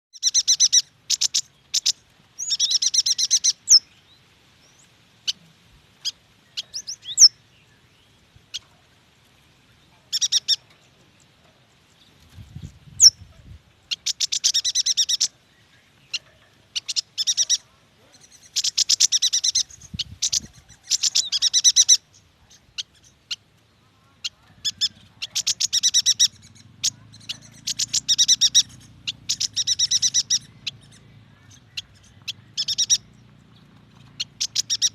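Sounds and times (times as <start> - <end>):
bird chattering chirps: 0.2 - 3.9, 6.0 - 7.4, 10.1 - 10.8, 12.5 - 34.9.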